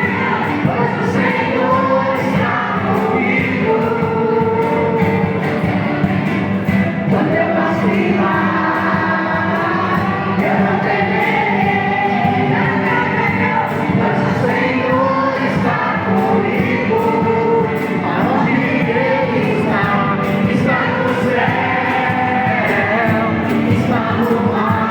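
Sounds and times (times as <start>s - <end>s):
group singing a hymn: 0.0s - 24.9s.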